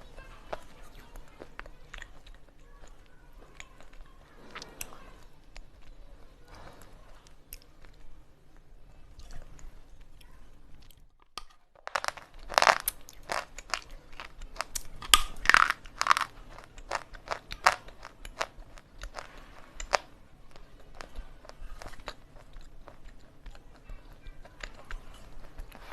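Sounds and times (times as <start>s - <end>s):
crunching slate pencil in mouth: 0.4s - 6.0s, 11.8s - 25.9s.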